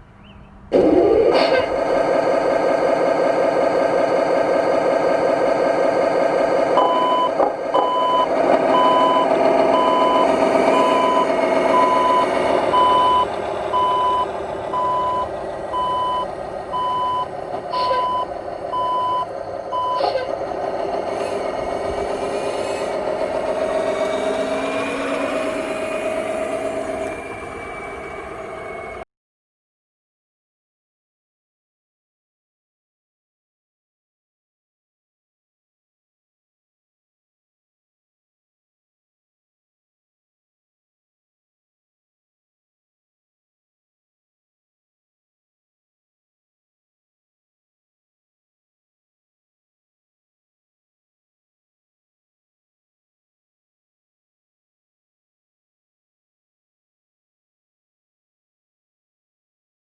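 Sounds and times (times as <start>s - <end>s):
diesel truck engine running: 0.0s - 29.0s
reversing beeper: 0.8s - 2.0s, 6.7s - 20.4s, 23.5s - 29.0s.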